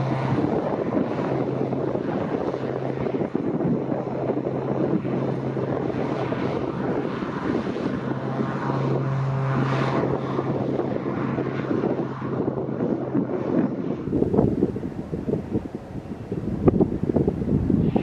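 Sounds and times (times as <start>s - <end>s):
aircraft engine running: 0.0s - 18.0s
wind buffeting microphone: 0.0s - 18.0s.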